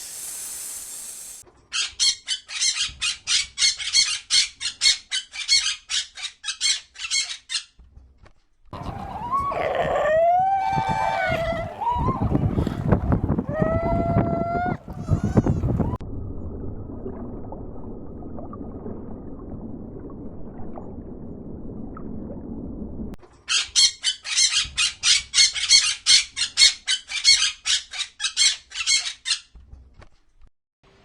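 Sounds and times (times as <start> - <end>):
animal harsh high calls: 8.8 - 16.0.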